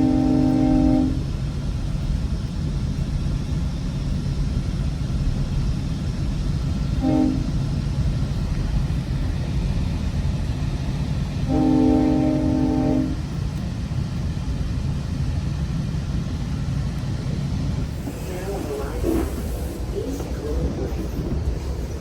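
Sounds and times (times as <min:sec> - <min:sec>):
train horn blasts: 0:00.0 - 0:01.3, 0:07.0 - 0:07.6, 0:11.4 - 0:13.4
train rumbling on rails: 0:00.0 - 0:22.0.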